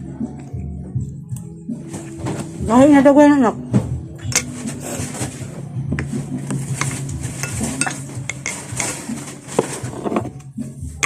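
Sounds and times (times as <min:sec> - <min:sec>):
spoon scraping a plate: 0:06.7 - 0:10.3.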